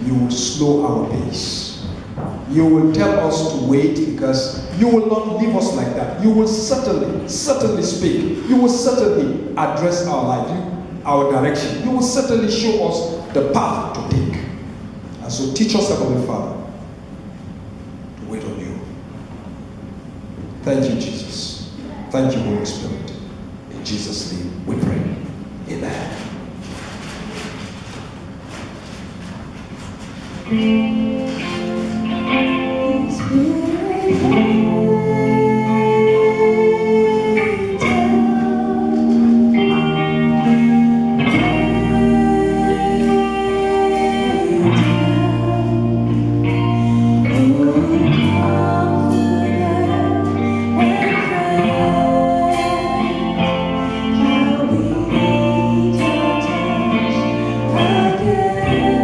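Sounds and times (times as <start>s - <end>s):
strummed guitar chords: 30.4s - 59.0s
bass line: 30.5s - 59.0s
person singing slow song: 30.6s - 59.0s.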